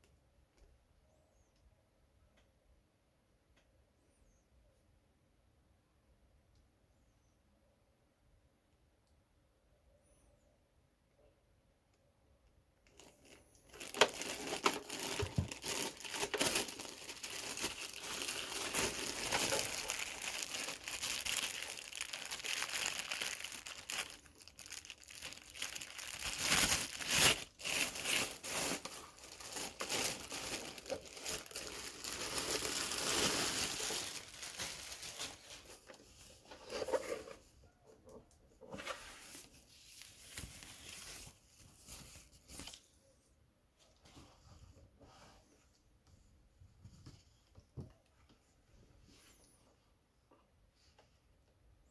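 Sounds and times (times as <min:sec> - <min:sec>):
packaging crinkling and rustling: 0:12.8 - 0:37.5
packaging tearing: 0:12.9 - 0:35.6.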